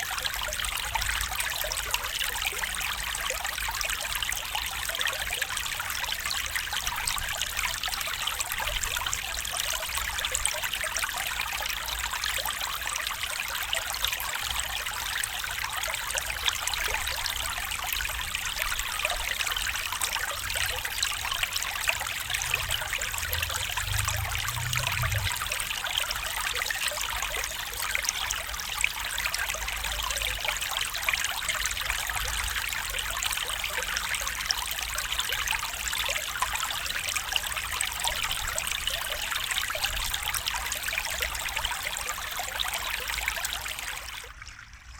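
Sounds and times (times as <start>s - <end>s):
stream babbling over stones: 0.0s - 44.7s
faint low rumble: 20.3s - 26.7s.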